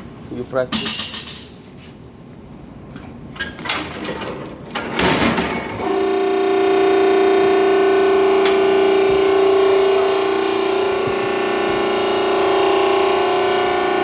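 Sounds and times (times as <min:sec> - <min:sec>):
baler motor humming: 0:05.8 - 0:14.0.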